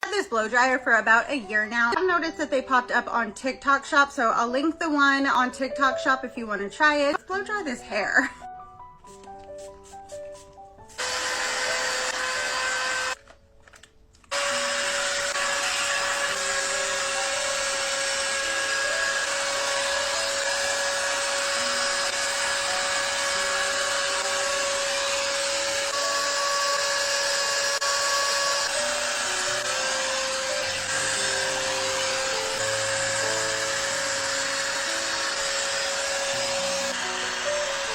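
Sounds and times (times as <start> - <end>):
hair dryer blowing air: 10.9 - 13.2, 14.3 - 37.9.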